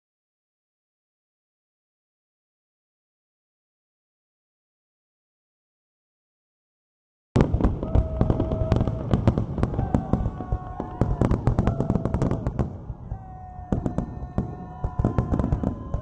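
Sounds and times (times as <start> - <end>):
fireworks crackling and banging: 7.4 - 16.0.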